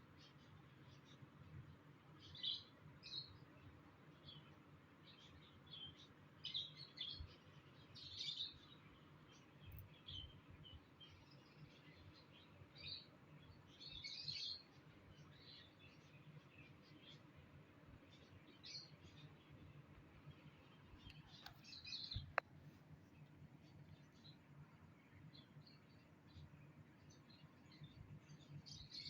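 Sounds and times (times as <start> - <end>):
lovebird chirping: 18.1 - 22.4.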